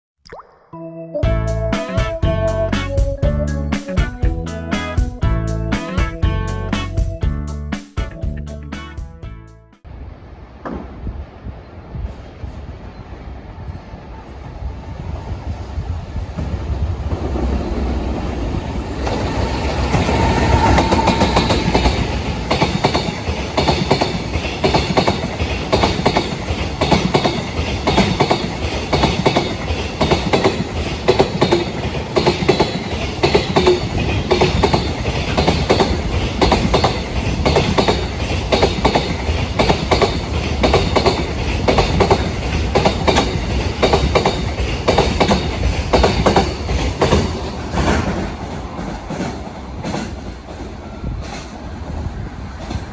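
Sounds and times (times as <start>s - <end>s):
train wheels clacking over rail joints: 16.4s - 51.6s.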